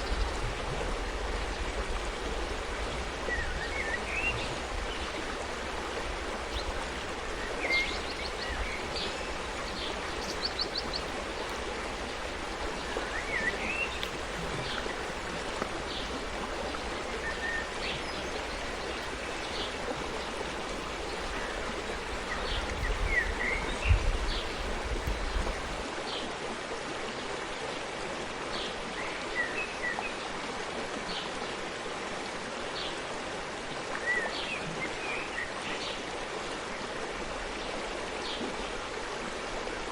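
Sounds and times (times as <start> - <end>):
small birds chirping: 0.0 - 25.8
stream flowing: 0.0 - 39.9.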